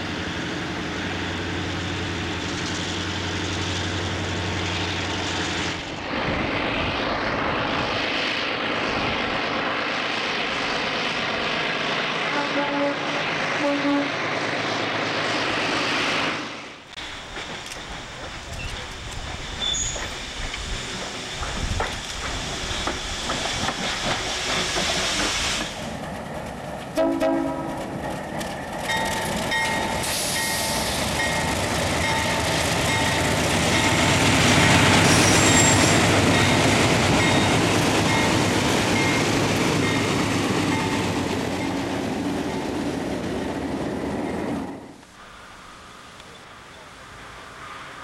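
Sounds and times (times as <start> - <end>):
train running on rails: 0.0 - 48.0
train horn blast: 12.3 - 14.2, 27.0 - 27.8.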